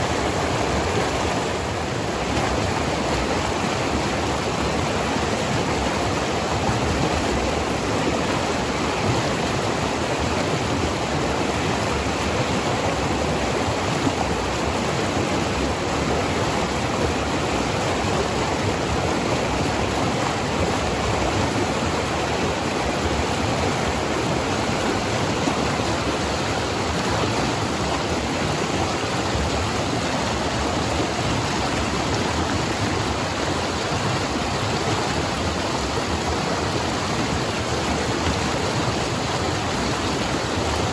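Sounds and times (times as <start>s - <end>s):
river water rushing over rocks: 0.0s - 40.9s.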